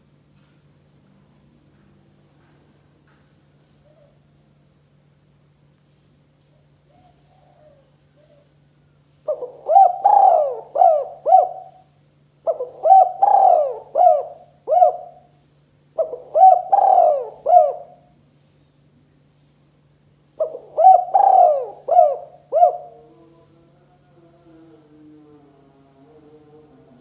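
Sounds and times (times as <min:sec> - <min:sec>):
faint low hum: 0:00.0 - 0:27.0
dove cooing: 0:06.9 - 0:08.5, 0:09.3 - 0:15.3, 0:16.0 - 0:18.1, 0:20.4 - 0:23.4.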